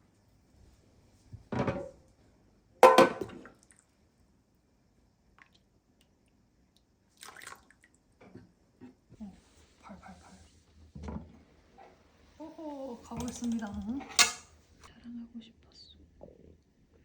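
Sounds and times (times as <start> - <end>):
kitchen clatters and splashes: 2.8 - 3.8, 7.1 - 8.5, 13.1 - 14.5.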